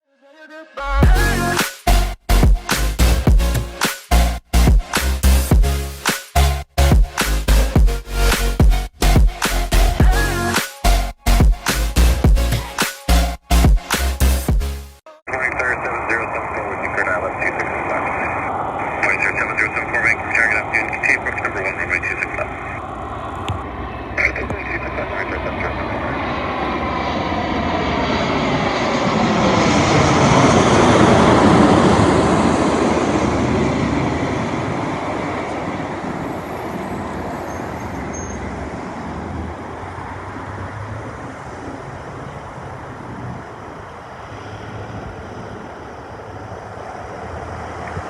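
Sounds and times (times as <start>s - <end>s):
jet engine whine: 15.3s - 48.0s
jet plane passing: 15.3s - 48.0s.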